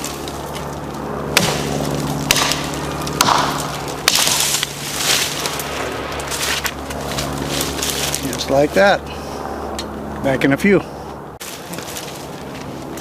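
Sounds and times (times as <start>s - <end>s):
wood cracking: 0.0s - 8.3s
axe chopping wood: 1.3s - 5.3s.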